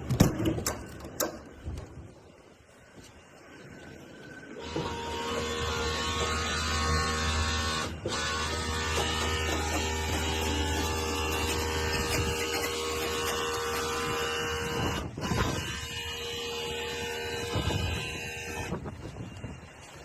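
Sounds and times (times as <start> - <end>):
mechanical hum: 0.0 - 20.0
high whining tones: 3.9 - 19.0.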